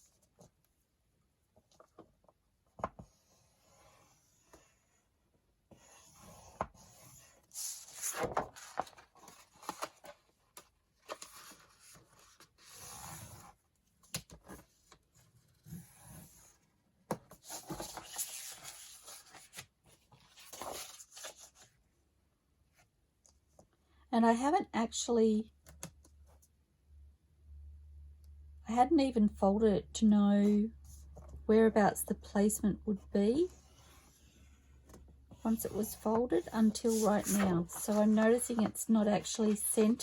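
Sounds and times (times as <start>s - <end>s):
paper rustling and sliding: 6.2s - 10.2s, 17.4s - 21.7s, 35.6s - 40.0s.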